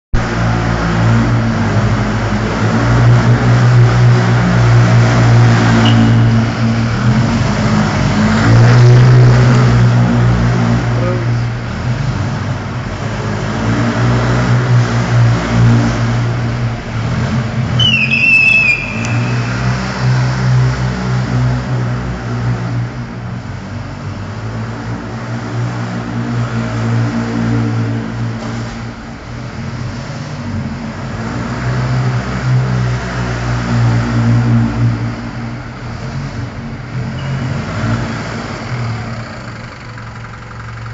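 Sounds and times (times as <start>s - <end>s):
tyre squeal: 17.8s - 20.1s.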